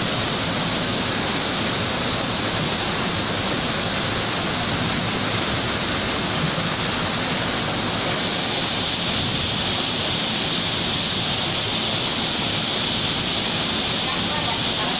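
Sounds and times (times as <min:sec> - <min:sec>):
rushing flowing water: 0:00.0 - 0:14.9.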